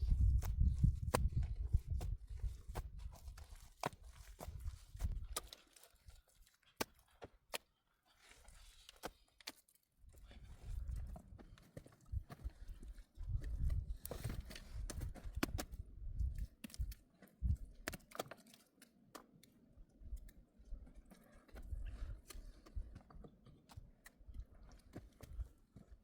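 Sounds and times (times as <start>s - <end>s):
dull low thuds: 0.0s - 3.2s.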